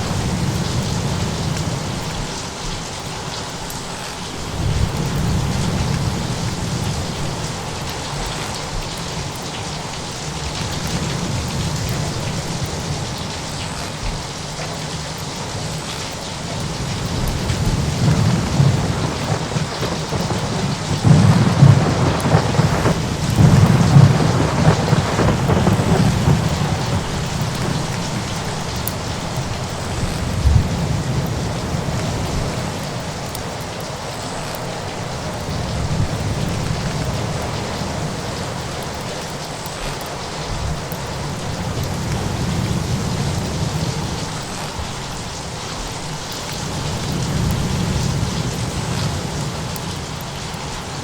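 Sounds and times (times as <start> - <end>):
steady rain: 0.0 - 51.0
rumbling thunder: 4.4 - 9.2, 16.6 - 33.4.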